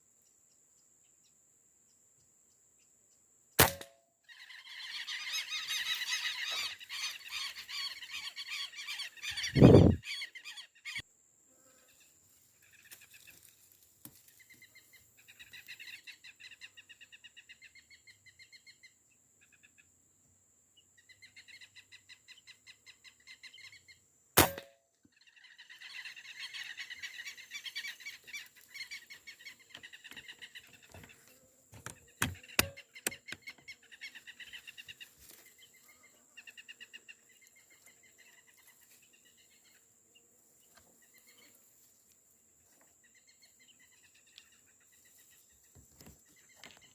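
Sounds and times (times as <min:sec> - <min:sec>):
air rifle firing: 0:03.6 - 0:04.0, 0:24.4 - 0:24.7
ducks whistling and chattering: 0:04.3 - 0:11.0, 0:25.2 - 0:39.9.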